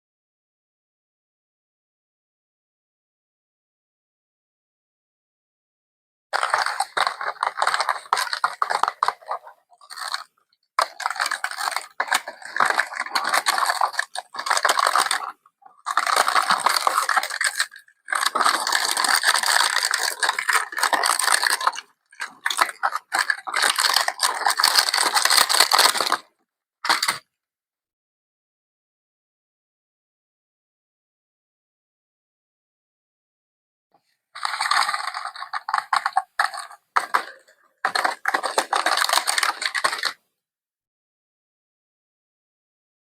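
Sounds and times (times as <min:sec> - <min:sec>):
contents clicking and rattling: 0:06.4 - 0:26.2, 0:26.9 - 0:27.2, 0:34.4 - 0:40.2
packaging crinkling: 0:06.4 - 0:26.2, 0:34.4 - 0:40.2.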